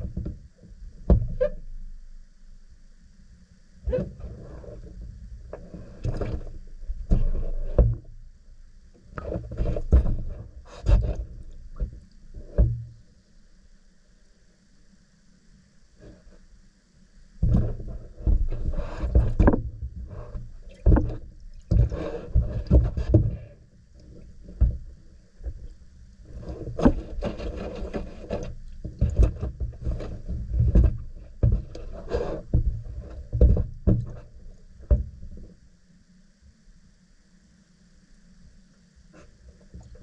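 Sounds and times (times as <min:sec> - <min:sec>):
handling noise knocks and rustles: 0:00.0 - 0:01.8, 0:03.9 - 0:08.2, 0:09.0 - 0:13.0, 0:17.4 - 0:35.6.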